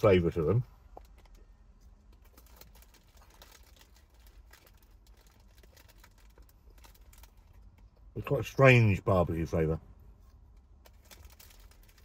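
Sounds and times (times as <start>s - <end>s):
low steady hum: 0.0s - 12.0s
crunchy snacks being chewed: 2.0s - 7.9s.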